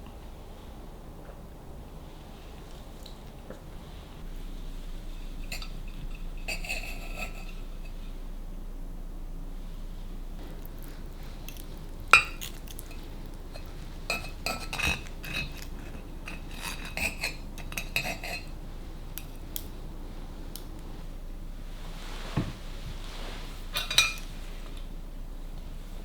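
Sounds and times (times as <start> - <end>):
cutlery and dishes clinking: 11.5 - 18.5, 23.7 - 24.3.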